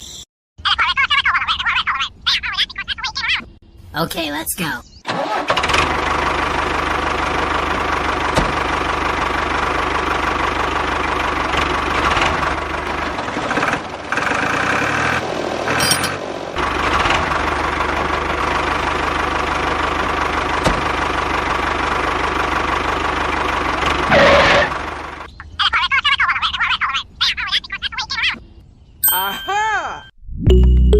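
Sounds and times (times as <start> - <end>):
tractor engine running: 5.1 - 25.6.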